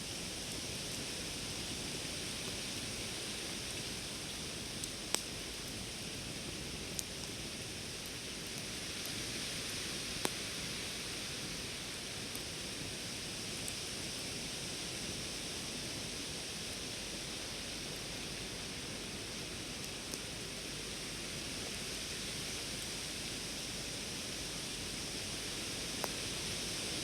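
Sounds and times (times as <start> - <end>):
campfire burning: 0.0 - 27.0
fire crackling pops: 2.0 - 13.8, 25.0 - 26.8.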